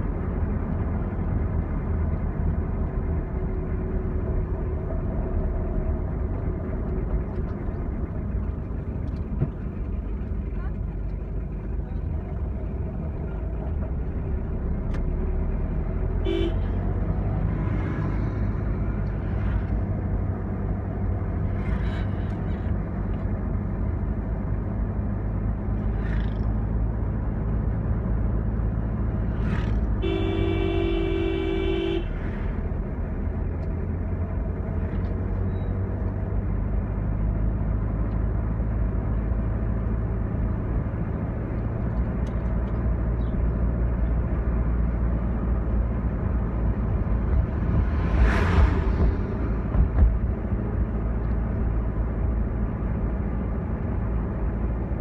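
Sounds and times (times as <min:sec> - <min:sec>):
vehicle engine and road rumble: 0:00.0 - 0:55.0
car horn honking: 0:16.2 - 0:16.8, 0:30.0 - 0:32.2.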